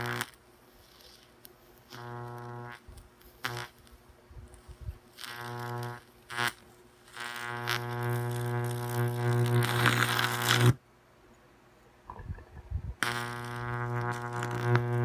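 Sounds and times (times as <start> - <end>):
high-voltage arc buzzing: 0.0 - 0.4, 1.8 - 3.9, 5.1 - 10.8, 13.0 - 15.0
faint crackles: 0.0 - 10.8, 12.1 - 15.0.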